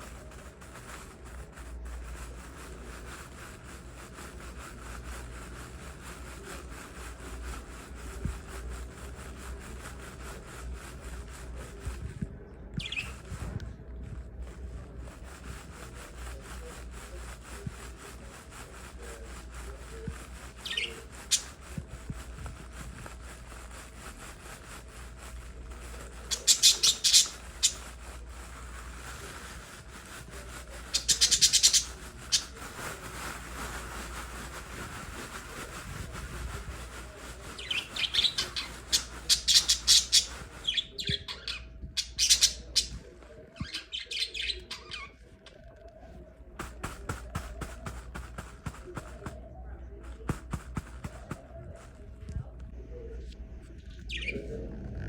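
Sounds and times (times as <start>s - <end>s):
steady low hum: 0.0s - 55.0s
lovebirds chirping: 12.8s - 13.3s, 20.4s - 21.6s, 25.7s - 32.7s, 37.0s - 43.0s, 43.6s - 45.2s, 54.0s - 54.5s.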